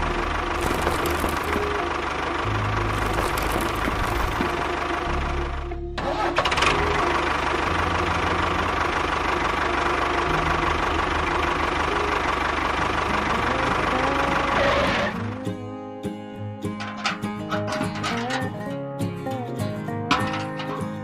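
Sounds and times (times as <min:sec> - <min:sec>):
small engine running: 0:00.0 - 0:15.6
mechanical clatter: 0:00.6 - 0:01.8, 0:02.9 - 0:04.7.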